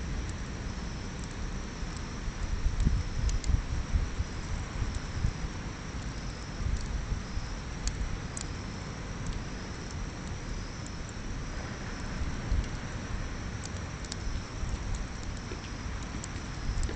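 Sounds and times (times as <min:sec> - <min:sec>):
bonfire crackling: 0:00.0 - 0:16.9
sharp pops of fire: 0:09.2 - 0:16.9.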